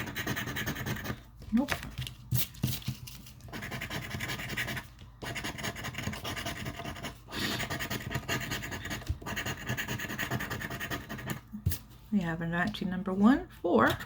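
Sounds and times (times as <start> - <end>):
lottery ticket being scratched: 0.0 - 1.2, 2.4 - 11.5.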